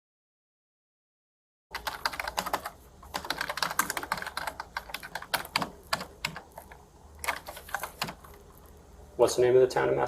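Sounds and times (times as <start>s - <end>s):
typing on computer keyboard: 1.7s - 8.4s.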